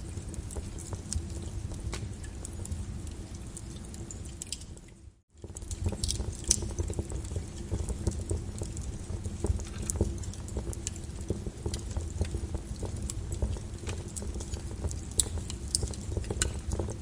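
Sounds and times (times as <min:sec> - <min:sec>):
lava crackling and popping: 0:00.0 - 0:17.0.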